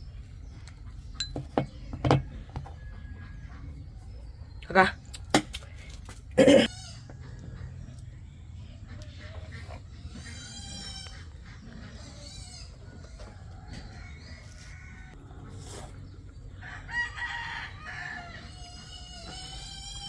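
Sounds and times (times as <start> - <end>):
roosters crowing: 16.4 - 20.0.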